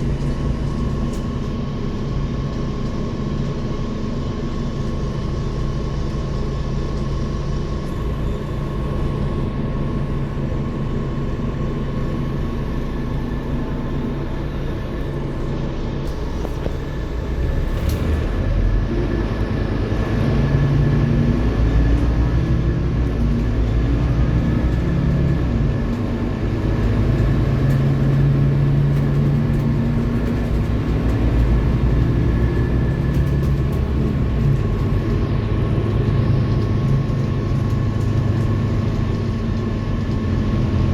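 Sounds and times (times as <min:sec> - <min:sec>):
steady high whine: 0:00.0 - 0:24.6
bus diesel engine: 0:00.0 - 0:40.9.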